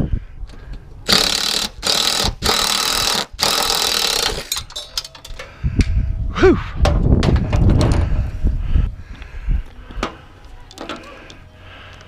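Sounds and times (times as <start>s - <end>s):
impact wrench bursts: 1.1s - 4.6s.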